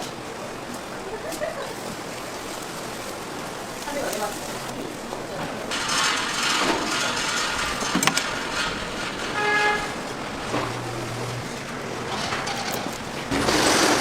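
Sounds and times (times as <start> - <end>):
street traffic noise: 0.0 - 14.0
vehicle horn toot: 9.3 - 10.1.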